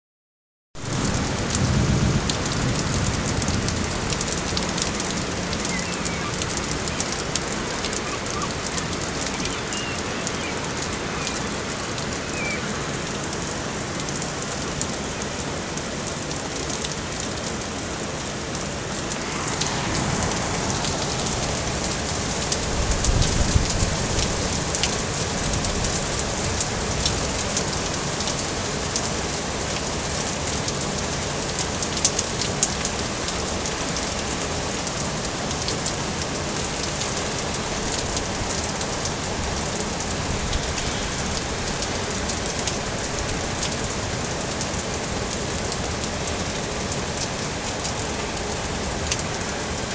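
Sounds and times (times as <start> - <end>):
thunder rumble: 0.8 - 9.4, 18.5 - 28.0
heavy rain on hard surfaces: 0.8 - 49.9.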